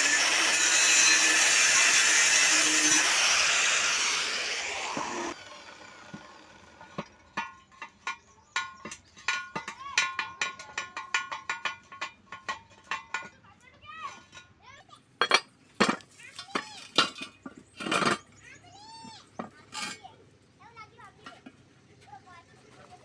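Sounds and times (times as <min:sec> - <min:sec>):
power tool grinding hiss: 0:00.0 - 0:06.8
metal clinks and taps: 0:07.1 - 0:13.3.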